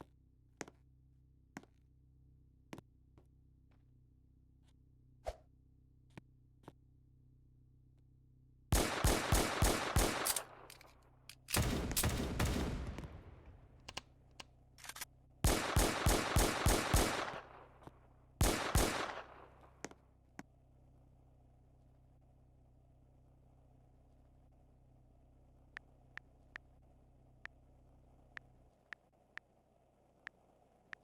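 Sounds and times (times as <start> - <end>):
loud gunfire-like bangs: 8.7 - 10.6, 11.6 - 13.7, 15.4 - 17.7.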